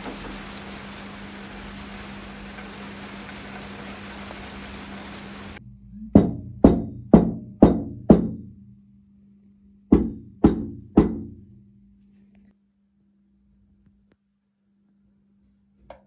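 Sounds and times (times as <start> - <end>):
hollow knocks: 6.2 - 8.5, 9.9 - 11.4.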